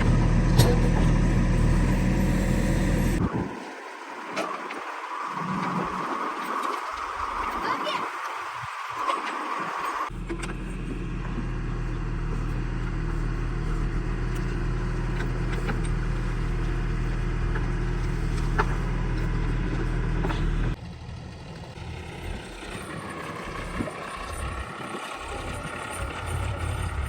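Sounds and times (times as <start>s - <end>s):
heavy diesel engine running: 0.0s - 3.3s, 10.1s - 27.0s.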